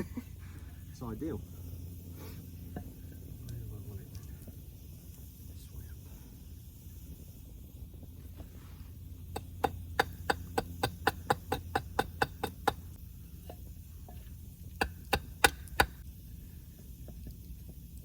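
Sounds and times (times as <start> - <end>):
tool knocking on wood: 9.4 - 12.8, 14.8 - 16.0.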